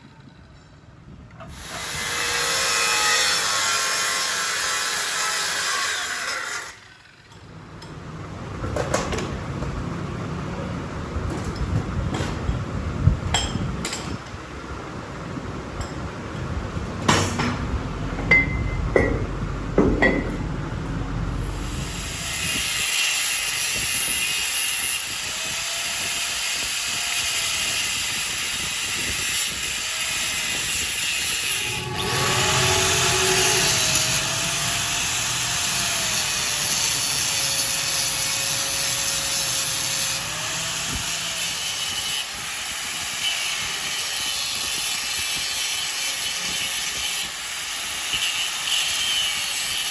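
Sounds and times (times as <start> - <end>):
sharp metal knocks: 17.0 - 20.6
workshop machine hissing: 28.5 - 41.2
faint wavering whine: 31.3 - 36.0.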